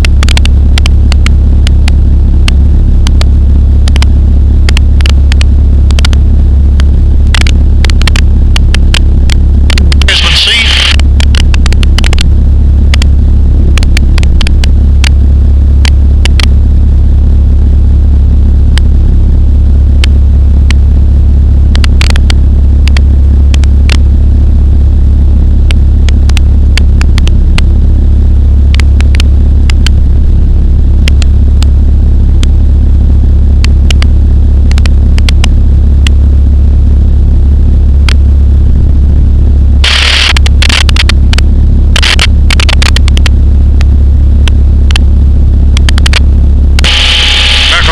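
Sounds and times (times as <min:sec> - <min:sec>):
sharp clicks: 0:00.0 - 0:01.9, 0:02.5 - 0:03.3, 0:03.9 - 0:04.1, 0:04.7 - 0:06.2, 0:06.8 - 0:12.3, 0:13.8 - 0:15.2, 0:39.8 - 0:41.4, 0:42.0 - 0:45.0, 0:45.8 - 0:47.9
microlight engine droning: 0:00.0 - 0:47.9.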